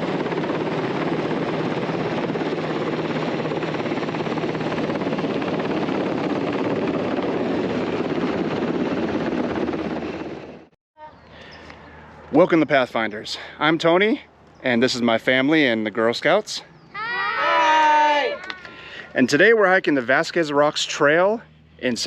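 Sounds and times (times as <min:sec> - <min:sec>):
helicopter rotor and turbine: 0:00.0 - 0:10.8.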